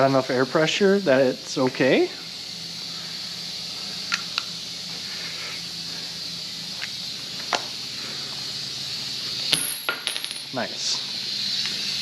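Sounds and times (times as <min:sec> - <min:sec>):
compressed air hissing: 0:02.2 - 0:09.5.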